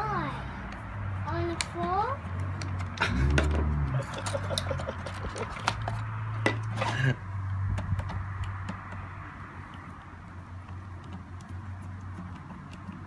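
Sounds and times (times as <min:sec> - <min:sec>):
plastic parts clicking and knocking: 0:02.4 - 0:06.7
steady low hum: 0:03.0 - 0:05.0.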